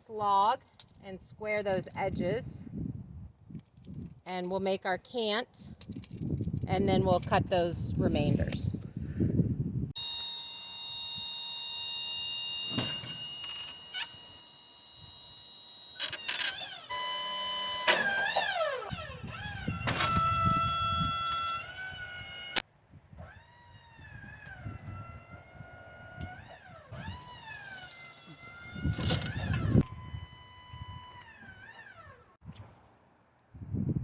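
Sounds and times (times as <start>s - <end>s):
faint wavering whine: 10.0s - 22.6s
sawmill machinery whine: 10.0s - 22.6s, 23.2s - 32.4s.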